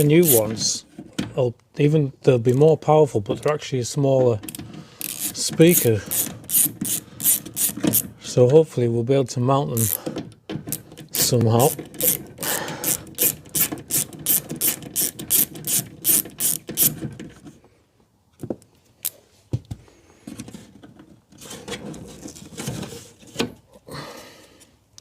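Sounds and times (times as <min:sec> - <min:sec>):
ratchet wrench clicking: 0:00.0 - 0:00.5, 0:05.0 - 0:08.0, 0:09.8 - 0:10.0, 0:10.7 - 0:12.2, 0:12.8 - 0:17.0
knocks and handling noise: 0:09.8 - 0:23.8.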